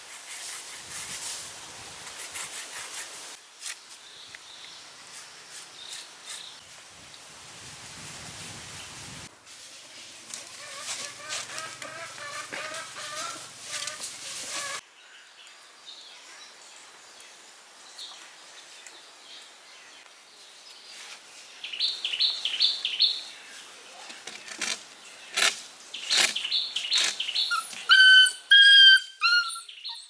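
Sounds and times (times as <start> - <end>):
puppy whining and yelping: 27.4 - 30.0.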